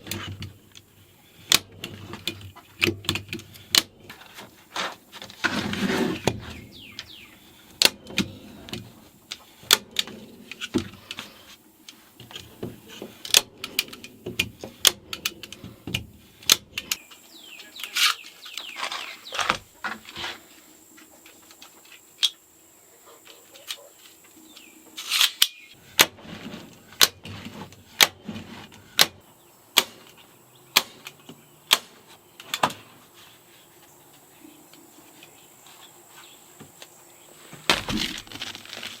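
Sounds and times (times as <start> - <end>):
scuffing noises: 32.9 - 39.0.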